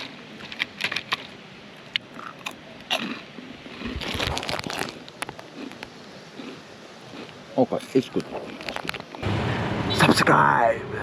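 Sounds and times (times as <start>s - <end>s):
person chewing food: 0.0s - 9.2s
rustling noise: 3.8s - 6.0s, 8.2s - 9.2s.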